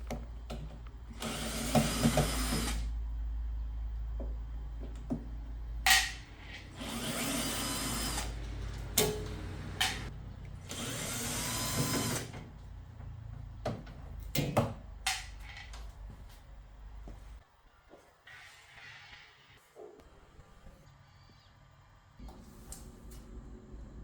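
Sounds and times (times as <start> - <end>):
handheld power tool whirring: 1.1 - 2.9, 6.0 - 12.5.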